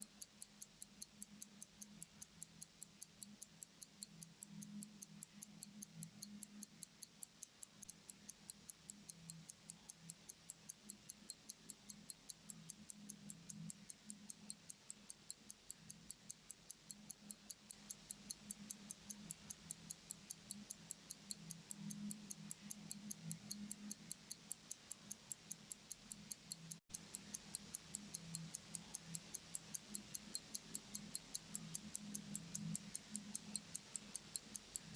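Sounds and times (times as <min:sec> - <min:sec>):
pocket watch ticking: 0:00.0 - 0:34.9.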